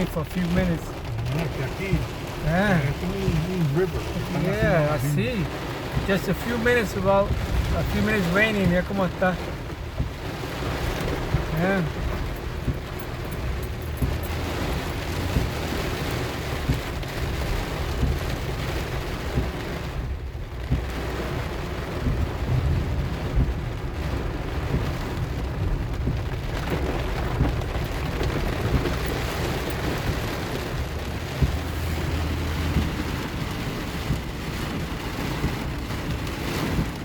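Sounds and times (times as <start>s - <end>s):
heavy rain drumming on car: 0.0s - 37.0s
low rumble of road and engine: 0.0s - 37.0s.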